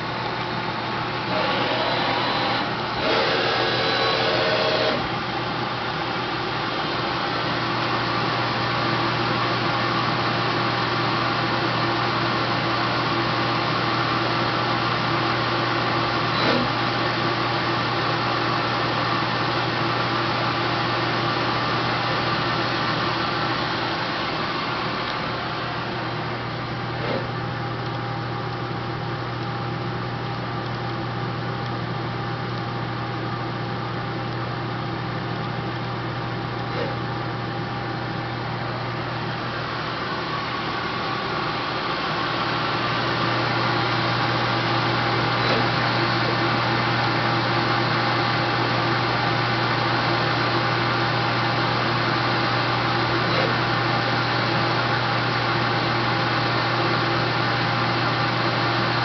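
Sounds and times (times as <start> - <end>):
lathe running with whine: 0.0 - 59.0.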